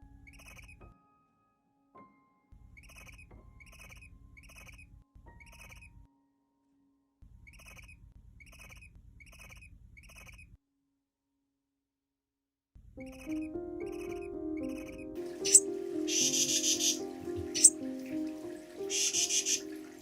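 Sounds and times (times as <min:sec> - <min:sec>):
bird-like animal call: 0:00.2 - 0:00.8, 0:02.8 - 0:04.8, 0:07.5 - 0:10.5, 0:13.0 - 0:17.8, 0:18.9 - 0:19.7.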